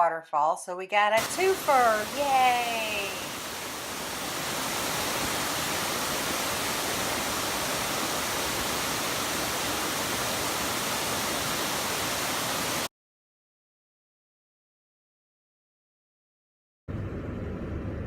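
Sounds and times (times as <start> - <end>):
waterfall pouring: 1.2 - 12.9.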